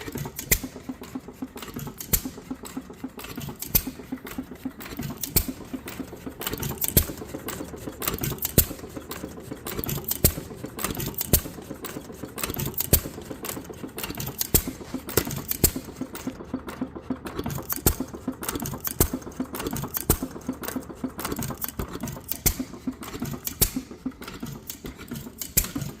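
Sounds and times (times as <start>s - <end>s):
rapid mechanical clicking: 0.0s - 26.0s.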